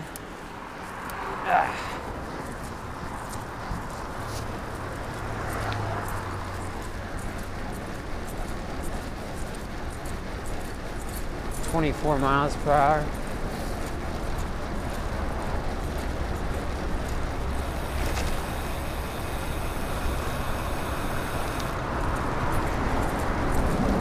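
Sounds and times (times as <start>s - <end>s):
bicycle tyre and road noise: 0.0s - 24.0s
wind rushing over microphone: 21.3s - 24.0s.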